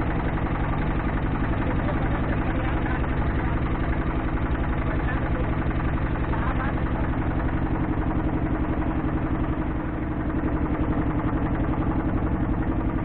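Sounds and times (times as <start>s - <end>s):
small boat engine chugging: 0.0s - 13.0s.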